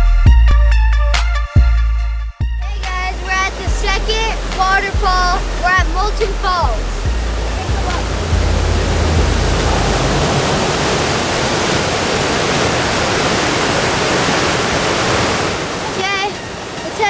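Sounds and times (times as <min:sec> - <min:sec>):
waterfall rushing: 0:02.7 - 0:17.0
deep low rumble: 0:03.7 - 0:11.4.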